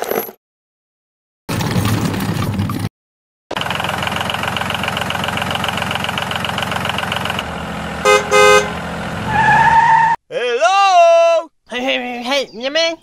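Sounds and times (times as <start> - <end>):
tractor engine chugging: 3.5 - 9.2
short horn toots: 8.1 - 8.8.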